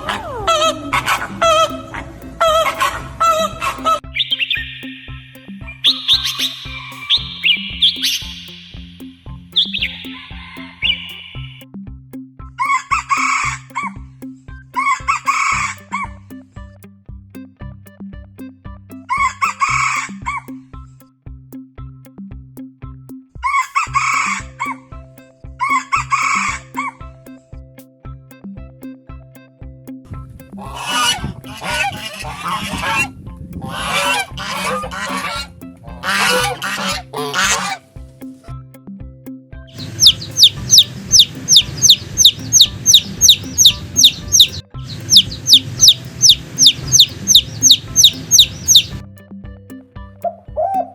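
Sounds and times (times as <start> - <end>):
geese honking: 0.0 - 4.0, 14.8 - 16.1, 19.1 - 20.4, 23.5 - 24.8, 25.6 - 26.9, 30.5 - 37.9, 39.8 - 49.0
background music with steady beat: 0.0 - 50.9
rooster crowing: 6.2 - 7.3, 9.8 - 11.5.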